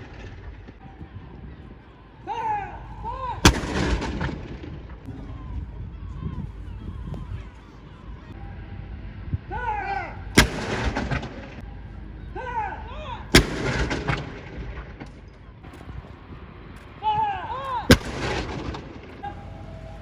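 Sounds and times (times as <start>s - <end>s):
gun salute bangs with echo: 2.4s - 5.2s, 9.9s - 12.0s, 13.2s - 20.0s.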